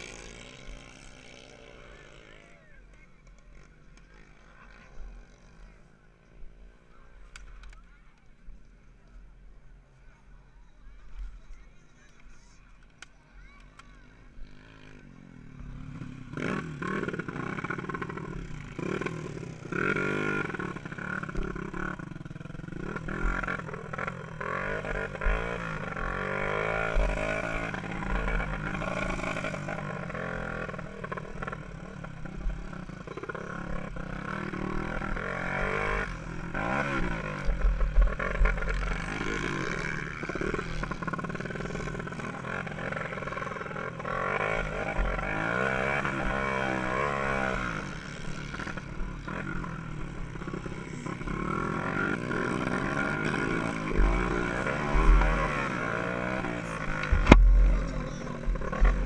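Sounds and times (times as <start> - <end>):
dirt bike engine revving: 0.0 - 2.6, 14.4 - 59.0.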